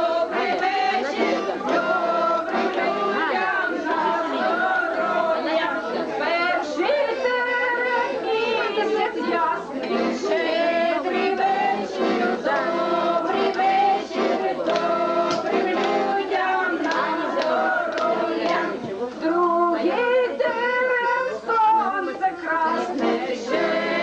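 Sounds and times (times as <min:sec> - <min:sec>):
musical accompaniment: 0:00.0 - 0:05.4, 0:09.3 - 0:19.1, 0:21.0 - 0:24.0
group singing: 0:00.0 - 0:24.0.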